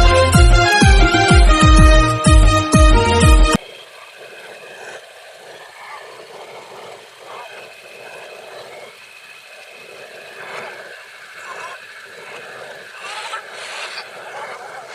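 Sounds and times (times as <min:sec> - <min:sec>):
loud music: 0:00.0 - 0:03.6
moving vehicle background noise: 0:03.6 - 0:14.9.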